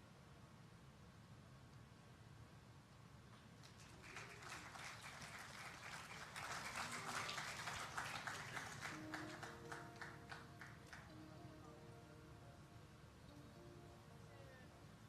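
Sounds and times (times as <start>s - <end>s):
audience clapping: 3.6s - 11.2s
steady low hum: 8.7s - 15.0s.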